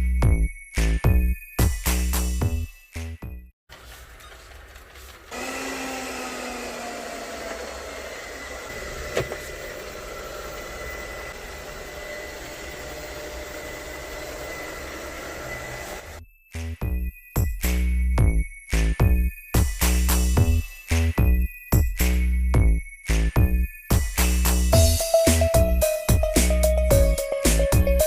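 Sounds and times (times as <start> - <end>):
robot vacuum motor whirring: 5.3 - 16.2.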